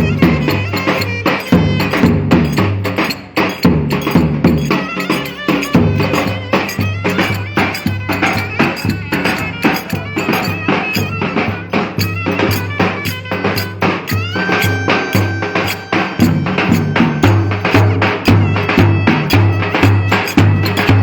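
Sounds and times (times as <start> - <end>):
driving drum beat: 0.0 - 21.0
reedy wind instrument melody: 0.0 - 21.0.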